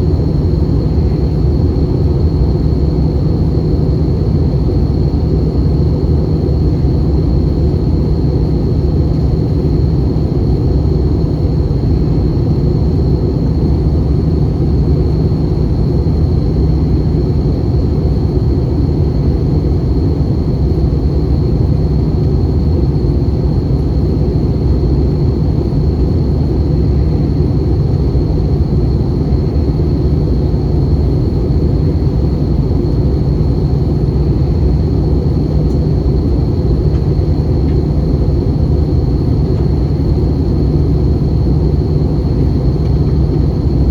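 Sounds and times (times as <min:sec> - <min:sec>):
aircraft cabin engine rumble: 0:00.0 - 0:43.9.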